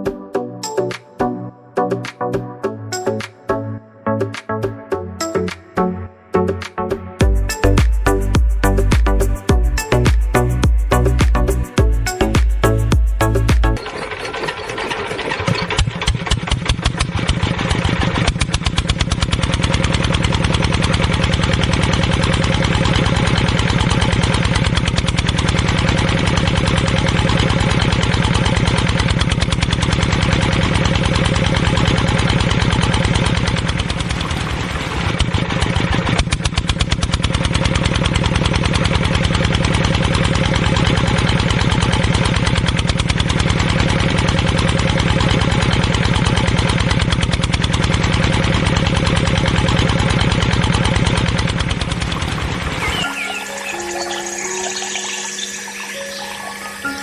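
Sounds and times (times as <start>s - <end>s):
small water pump engine chugging: 13.7s - 57.0s.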